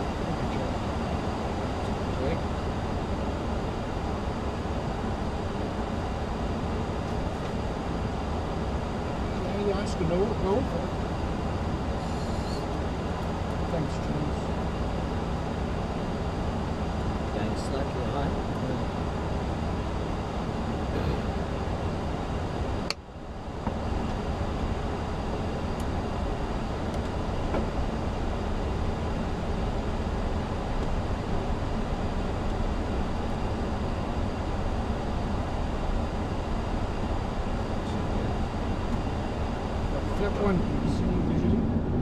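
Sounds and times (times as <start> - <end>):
airplane cockpit engine rumble: 0.0 - 42.0.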